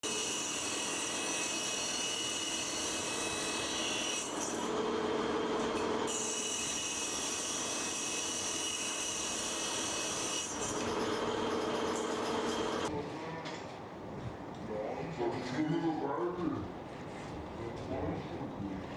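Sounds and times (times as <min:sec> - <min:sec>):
metalworking machine scraping steel: 0:00.0 - 0:12.9.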